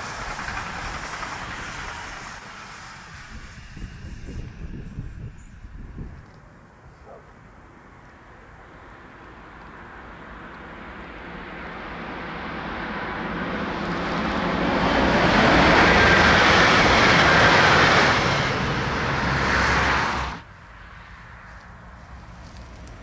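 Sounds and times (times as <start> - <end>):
wheels rolling on rail: 0.0 - 6.6, 8.0 - 20.4
electric train passing at speed: 0.0 - 6.8, 7.4 - 23.0.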